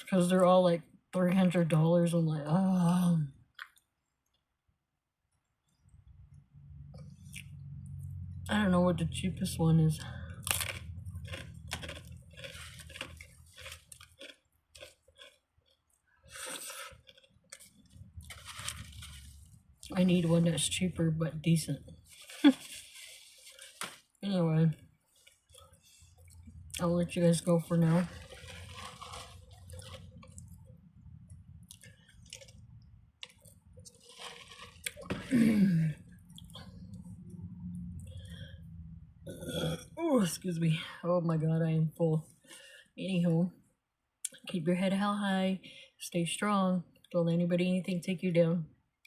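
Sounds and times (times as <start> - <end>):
person chewing a sandwich: 10.3 - 20.0, 21.9 - 24.2, 24.9 - 26.8, 28.0 - 38.5.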